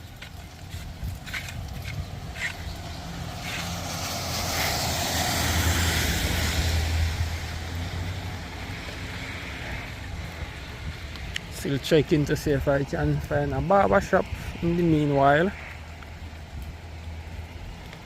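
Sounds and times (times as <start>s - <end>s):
vehicle passing by: 2.1s - 11.1s.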